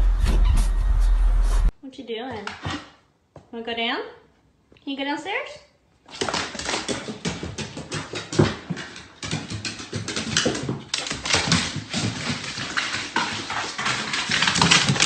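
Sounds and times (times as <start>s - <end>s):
dog paws tapping on wooden stairs: 6.1s - 15.0s.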